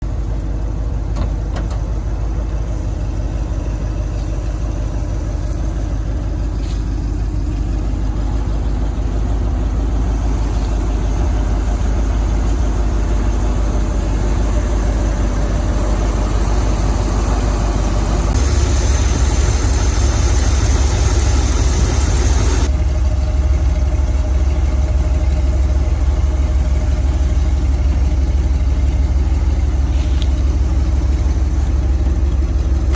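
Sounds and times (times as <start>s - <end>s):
car engine idling: 0.0s - 32.9s
hiss: 29.7s - 30.8s.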